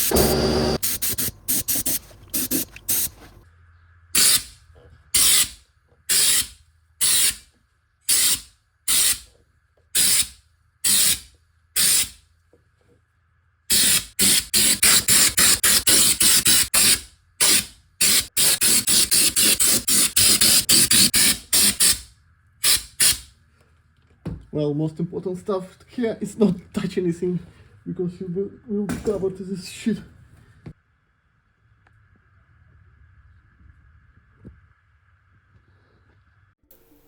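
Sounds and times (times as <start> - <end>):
spray hissing bursts: 0.0 - 3.4.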